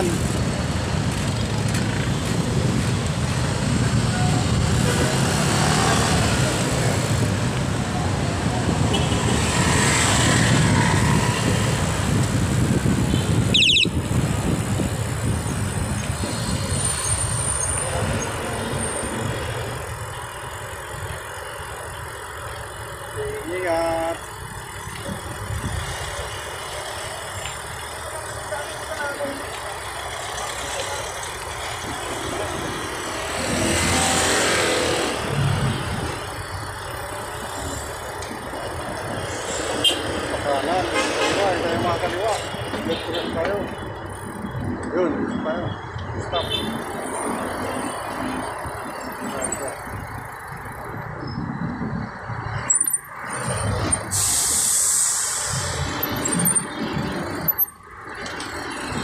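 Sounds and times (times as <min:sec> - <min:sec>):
bicycle road noise: 0:00.0 - 0:59.0
car engines in traffic: 0:00.0 - 0:59.0
wind buffeting microphone: 0:06.8 - 0:18.4, 0:49.8 - 0:52.7
high-pitched rising squeak: 0:13.5 - 0:13.9.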